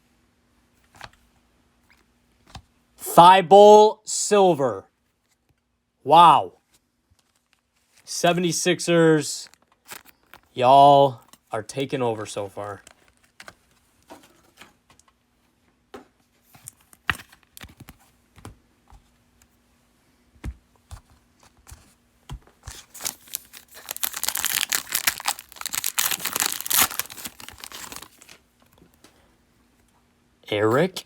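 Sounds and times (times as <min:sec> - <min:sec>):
card pack wrapper tearing: 0:22.7 - 0:28.4.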